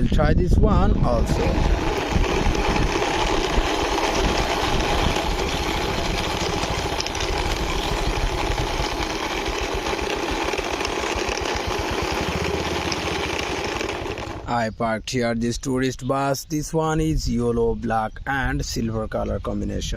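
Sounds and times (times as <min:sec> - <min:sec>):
engine running with rapid pulsing: 0:00.8 - 0:14.5.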